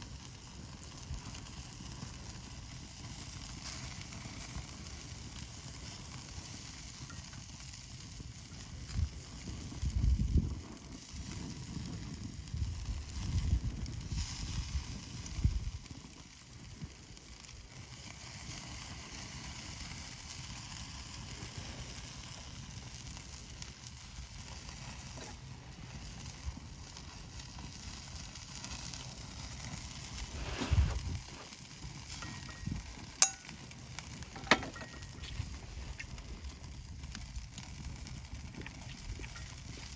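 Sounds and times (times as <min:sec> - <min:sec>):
meat sizzling on a grill: 0:00.0 - 0:39.9
low rumbles: 0:30.1 - 0:31.4.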